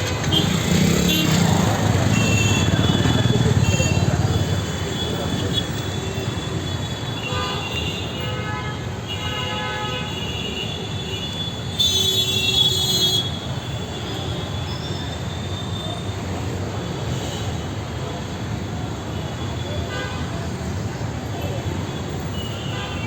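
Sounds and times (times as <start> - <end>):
horn toots: 0.0 - 5.7
street traffic rumble: 0.0 - 23.0.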